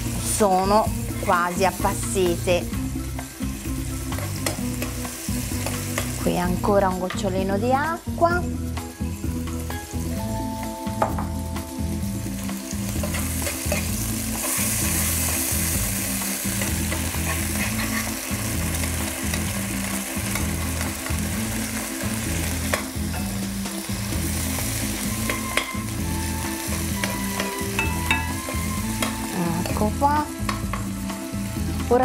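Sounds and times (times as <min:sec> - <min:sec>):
onions sizzling in a frying pan: 0:00.0 - 0:32.0
spoon scraping a pan: 0:13.0 - 0:15.5, 0:16.6 - 0:18.3.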